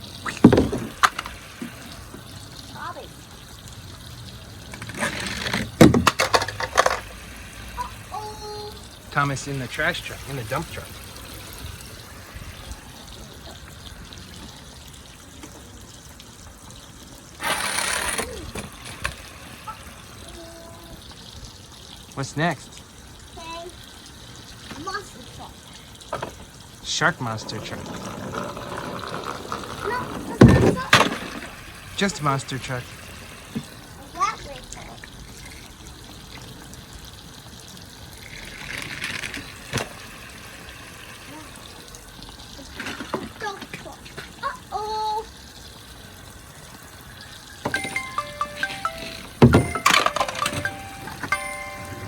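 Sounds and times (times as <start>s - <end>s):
toy truck splashing into water: 0.0s - 22.8s, 23.4s - 52.0s
water trickling: 0.0s - 52.0s.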